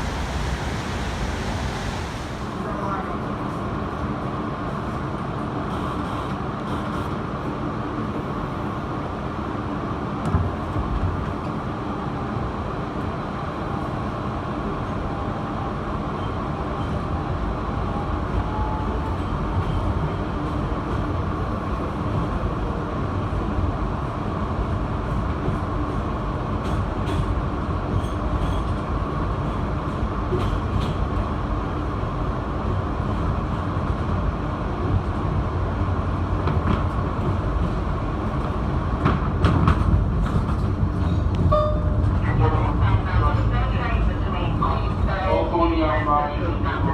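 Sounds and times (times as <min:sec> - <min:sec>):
faint rising whine: 0:00.0 - 0:02.7
subway wheels rumbling on track: 0:00.0 - 0:46.9.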